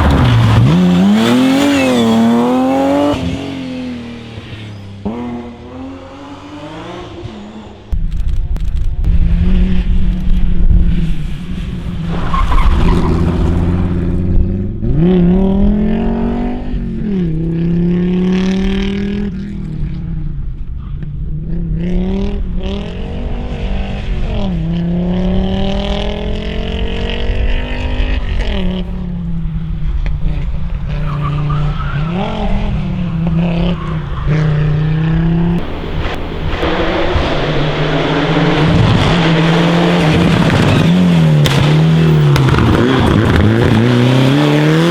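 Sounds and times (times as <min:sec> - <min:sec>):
rally car engines revving: 0:00.0 - 0:44.9
tyres squealing: 0:29.6 - 0:44.3.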